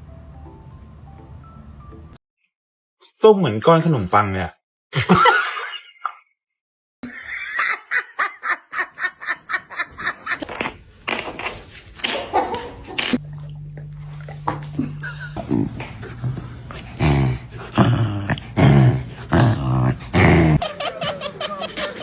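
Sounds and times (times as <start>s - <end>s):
person laughing hard: 5.0s - 6.2s, 14.8s - 15.9s, 20.2s - 22.0s
low steady hum: 13.0s - 17.8s.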